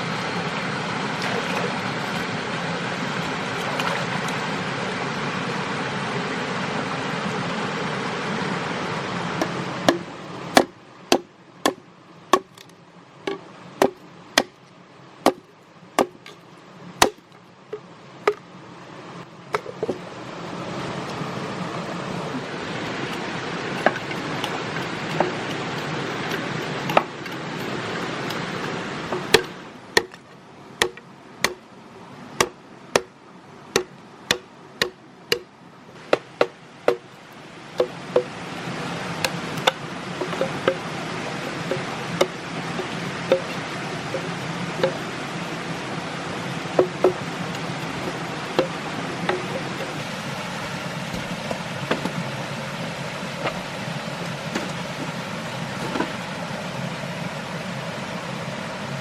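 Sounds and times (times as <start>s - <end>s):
steady rushing noise: 0.0s - 11.2s, 17.7s - 59.0s
blade chopping wood: 9.4s - 12.7s, 13.3s - 14.6s, 15.2s - 16.4s, 17.0s - 17.4s, 23.8s - 27.4s, 29.1s - 30.2s, 30.8s - 31.6s, 32.4s - 33.1s, 33.8s - 35.5s, 39.2s - 40.8s.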